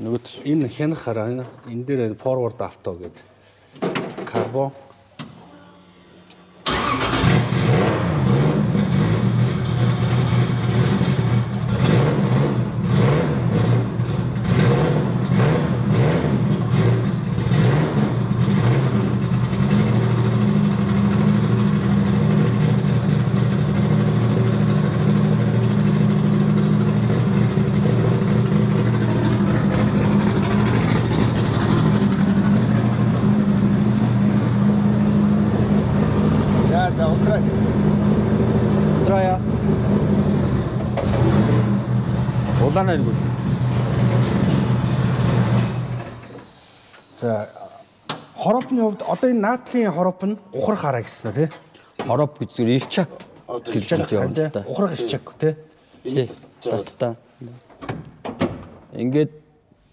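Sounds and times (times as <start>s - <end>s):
car engine starting: 6.6s - 47.1s
engine idling low: 15.1s - 46.2s.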